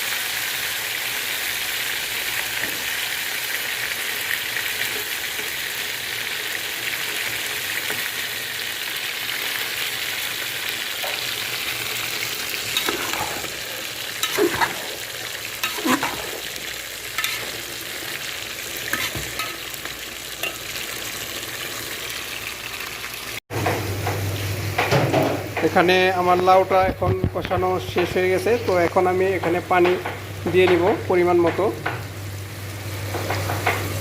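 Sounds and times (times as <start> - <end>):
vegetable sizzling in hot oil: 0.0 - 26.4, 32.0 - 34.0
utensil scraping a pot: 12.6 - 18.2, 18.8 - 19.7.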